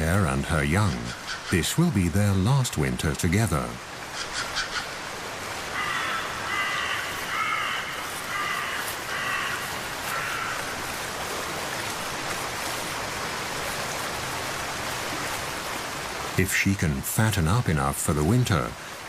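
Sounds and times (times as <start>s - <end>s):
rain hiss: 0.0s - 19.0s
running water: 0.0s - 19.0s
crow-like bird cawing: 4.1s - 5.0s, 5.7s - 10.8s.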